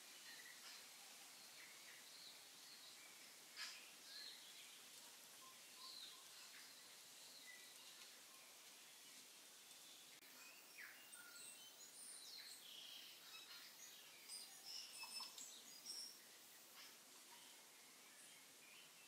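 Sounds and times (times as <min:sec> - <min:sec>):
birds chirping: 0:00.0 - 0:19.0
low hiss: 0:00.0 - 0:19.0.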